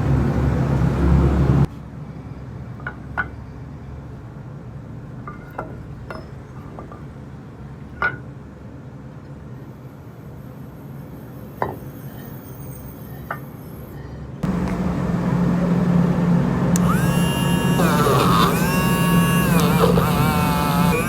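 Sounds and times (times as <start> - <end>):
loud steady noise: 14.4 - 21.0
steady low hum: 14.4 - 21.0.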